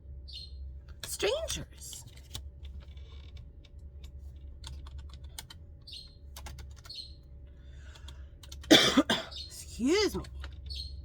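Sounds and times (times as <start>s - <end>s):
steady low hum: 0.0s - 11.0s
typing on computer keyboard: 4.6s - 5.6s, 6.3s - 7.0s, 7.9s - 8.7s.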